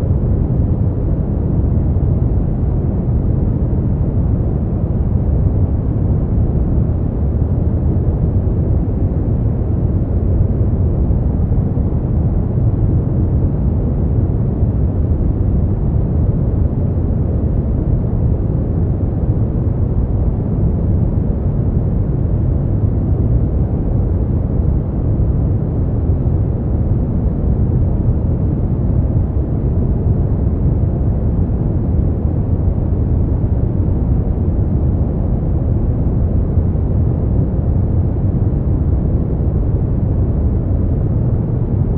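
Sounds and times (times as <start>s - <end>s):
deep rumbling brown noise: 0.0s - 41.9s.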